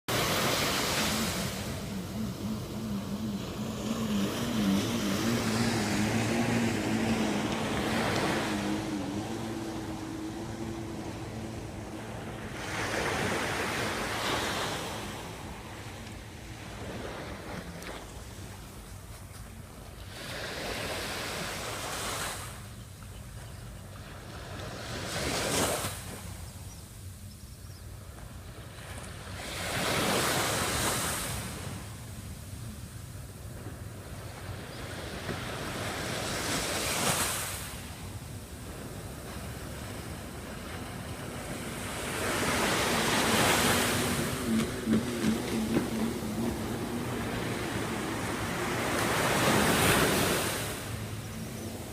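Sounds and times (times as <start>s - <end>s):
waves breaking: 0.1s - 27.2s, 27.9s - 51.9s.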